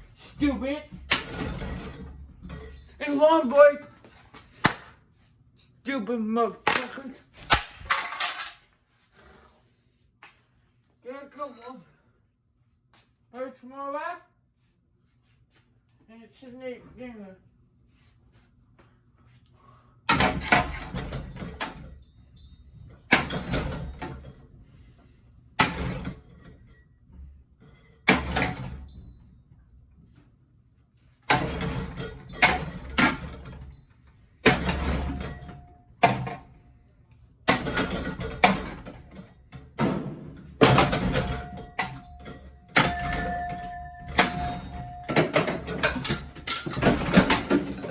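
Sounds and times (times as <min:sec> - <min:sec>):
ceiling fan being smashed: 0:01.0 - 0:02.1, 0:04.5 - 0:05.0, 0:06.6 - 0:08.6, 0:23.1 - 0:24.1, 0:28.0 - 0:28.9, 0:31.3 - 0:33.6, 0:34.4 - 0:36.5, 0:37.5 - 0:47.9
brief metallic ring: 0:42.8 - 0:45.5.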